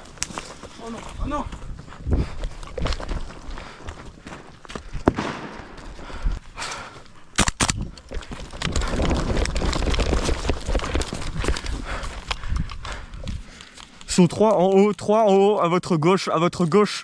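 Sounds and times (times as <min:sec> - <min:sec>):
scuffing and rustling movement: 0:00.0 - 0:06.1
airsoft gun shots: 0:05.1 - 0:05.7.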